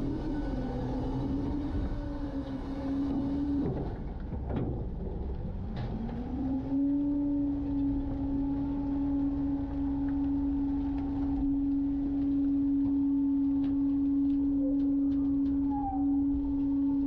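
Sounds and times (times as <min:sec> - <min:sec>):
garbage truck engine hum: 0:00.0 - 0:17.0.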